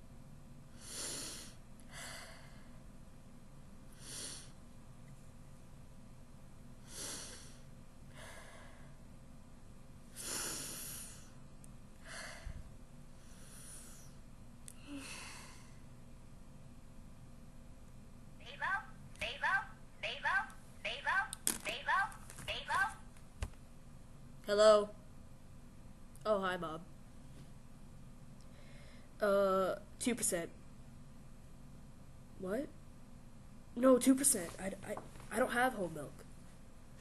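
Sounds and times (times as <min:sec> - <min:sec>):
faint low hum: 0:00.0 - 0:37.0
person breathing and sniffing: 0:00.8 - 0:02.7, 0:03.9 - 0:04.6, 0:06.8 - 0:09.0, 0:10.1 - 0:11.4, 0:12.0 - 0:14.2.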